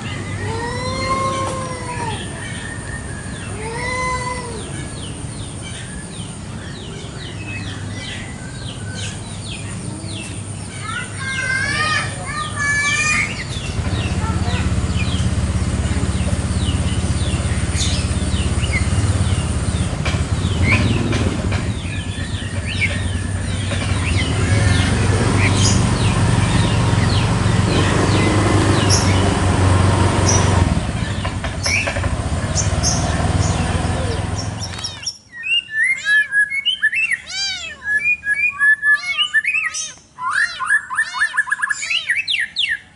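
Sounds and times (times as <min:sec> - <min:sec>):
small birds chirping: 0:00.0 - 0:42.9
low engine hum: 0:12.2 - 0:35.1.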